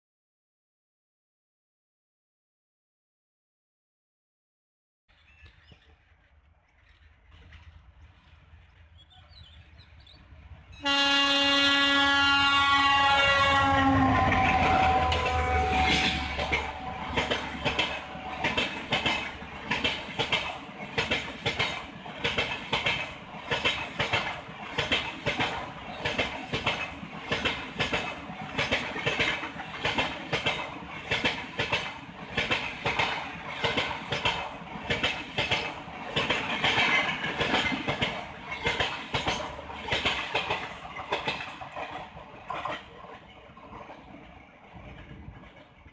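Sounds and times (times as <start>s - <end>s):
train wheels clattering over rail joints: 5.1s - 10.2s, 14.2s - 45.9s
locomotive horn: 10.8s - 17.2s.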